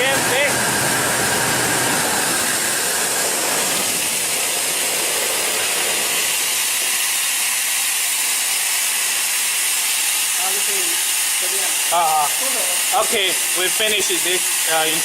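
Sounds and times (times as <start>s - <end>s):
compressor low rumble: 0.0s - 6.4s
compressed air hissing: 0.4s - 15.0s.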